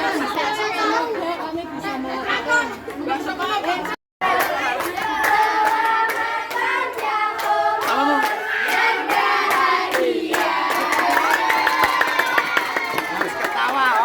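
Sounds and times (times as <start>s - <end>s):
young voices singing together: 4.2s - 12.2s
students clapping along: 4.2s - 14.0s.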